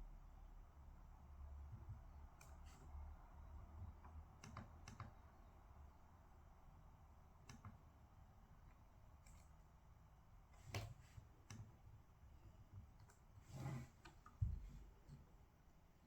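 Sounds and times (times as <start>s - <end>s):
faint clicks and taps at desk: 1.6s - 2.8s, 3.5s - 5.4s, 7.4s - 8.0s, 8.6s - 9.6s, 10.6s - 12.0s, 12.6s - 13.3s.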